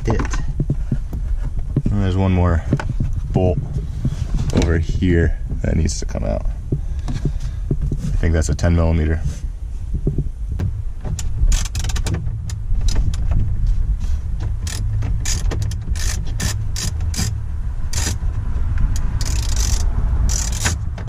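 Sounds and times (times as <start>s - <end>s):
steady low hum: 0.0s - 21.0s
ratchet wrench clicking: 14.6s - 18.2s, 18.9s - 20.9s.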